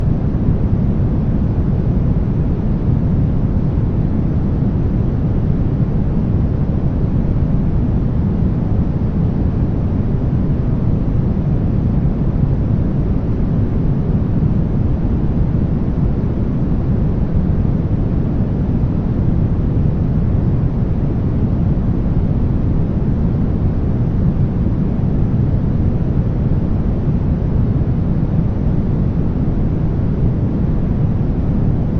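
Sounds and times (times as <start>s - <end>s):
steady deep noise rush: 0.0s - 31.9s.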